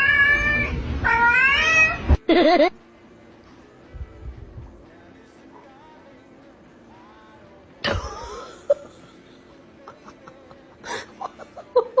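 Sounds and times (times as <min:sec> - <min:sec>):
person laughing: 0:02.2 - 0:02.8, 0:07.8 - 0:12.0.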